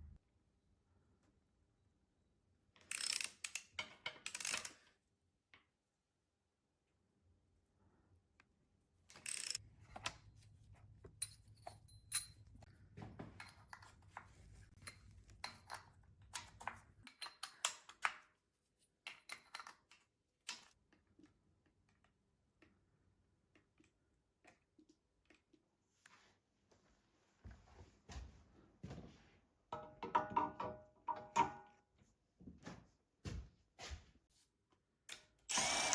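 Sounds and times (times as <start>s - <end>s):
metallic clicks and clinks: 11.1s - 12.7s, 19.1s - 20.8s.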